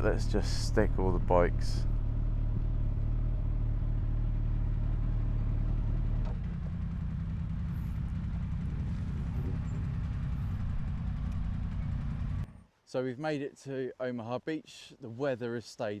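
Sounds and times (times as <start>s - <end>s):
motorcycle engine idling: 0.0s - 12.6s.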